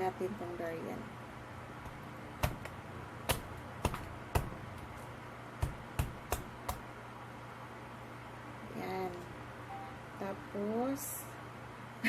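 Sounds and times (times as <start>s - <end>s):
knife chopping spiky husk: 1.9s - 5.0s, 5.6s - 6.9s.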